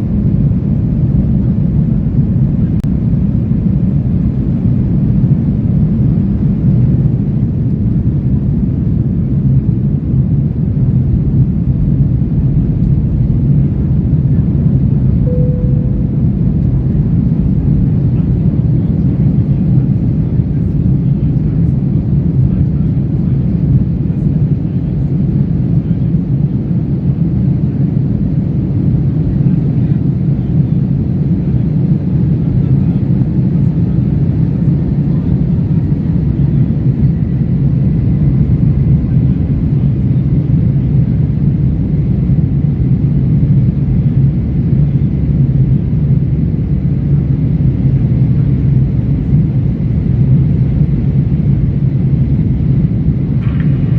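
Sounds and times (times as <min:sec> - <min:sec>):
airliner cabin engine rumble: 0:00.0 - 0:53.9
faint high steady tone: 0:15.2 - 0:17.5.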